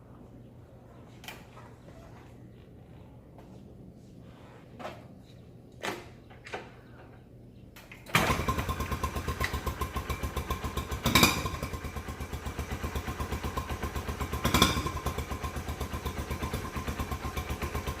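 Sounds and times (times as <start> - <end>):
motorcycle engine putting: 5.8 - 18.0.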